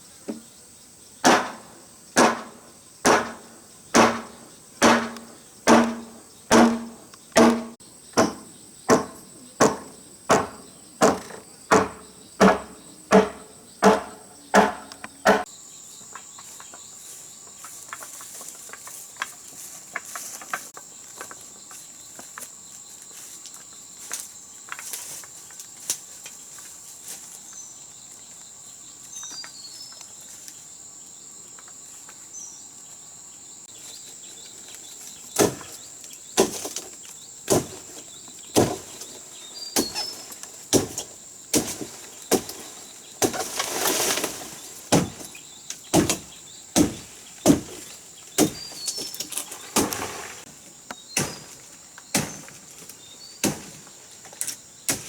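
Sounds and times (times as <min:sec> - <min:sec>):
crickets chirring: 0:00.0 - 0:55.0
tool striking wood: 0:01.2 - 0:15.5, 0:38.6 - 0:39.0, 0:39.8 - 0:40.1, 0:40.7 - 0:42.6, 0:44.9 - 0:45.3, 0:45.9 - 0:48.9, 0:51.2 - 0:52.5, 0:53.4 - 0:53.8
bird chirps: 0:38.1 - 0:40.3.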